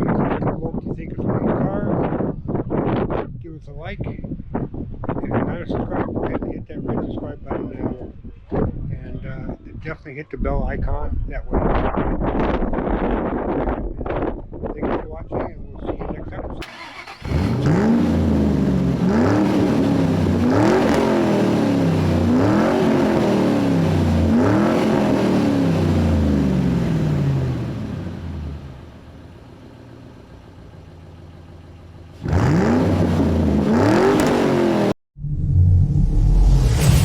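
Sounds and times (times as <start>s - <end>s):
car engine revving: 16.6s - 29.2s, 32.0s - 37.0s.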